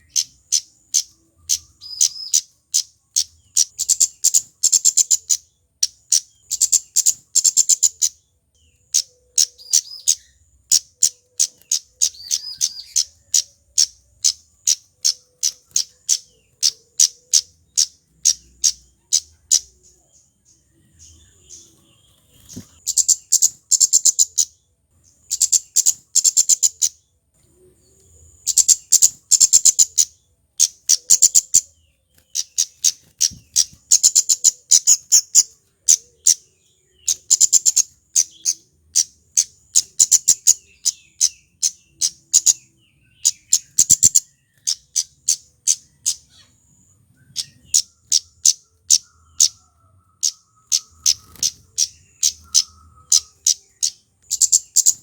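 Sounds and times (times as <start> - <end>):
bird high-pitched cit notes: 0.0 - 24.6, 47.2 - 55.0.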